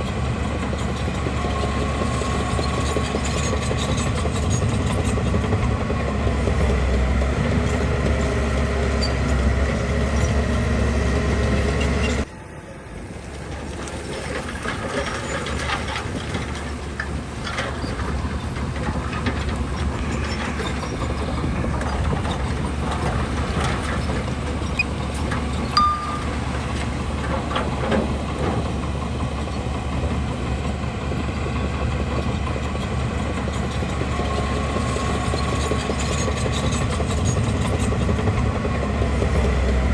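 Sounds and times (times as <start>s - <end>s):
bulldozer diesel engine running: 0.0s - 12.3s, 13.5s - 39.9s
machine clanking and knocking: 13.8s - 30.3s.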